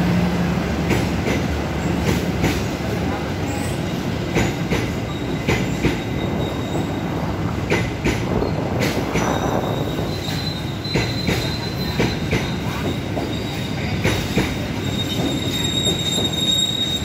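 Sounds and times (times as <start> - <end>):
train wheels rumbling on rail: 0.0 - 17.0
high wheel squeal: 5.1 - 7.1, 9.2 - 17.0.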